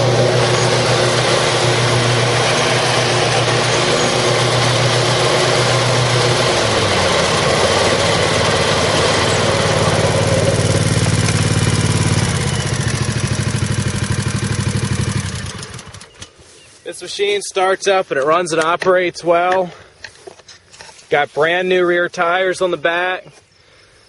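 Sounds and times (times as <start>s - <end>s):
lawn mower engine running: 0.0s - 19.2s.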